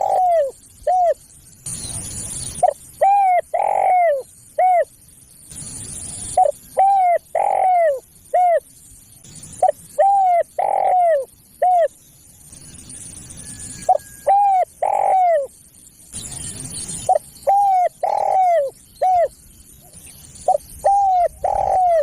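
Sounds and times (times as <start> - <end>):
dove cooing: 0.0 - 1.2, 2.6 - 4.9, 6.4 - 8.7, 9.6 - 12.0, 13.9 - 15.5, 17.1 - 19.4, 20.4 - 22.0
faint hiss: 0.0 - 21.6.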